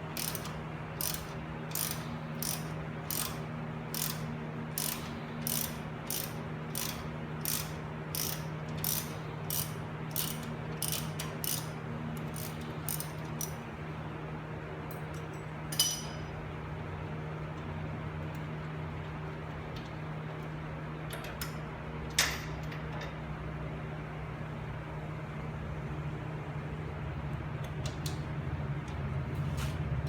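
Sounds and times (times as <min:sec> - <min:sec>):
ratchet wrench clicking: 0:00.1 - 0:13.6.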